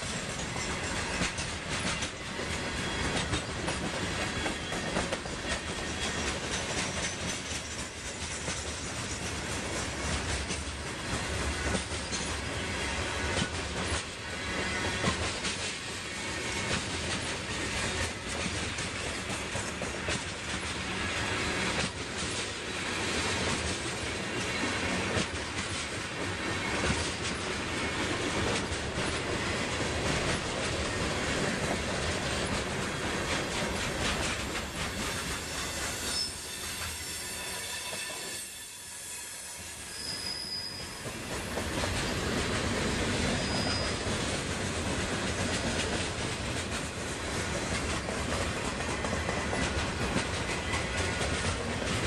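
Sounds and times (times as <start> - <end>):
freight train wheels clattering: 0.0 - 38.3, 40.2 - 52.0
high wheel squeals: 35.0 - 41.5, 43.2 - 44.1.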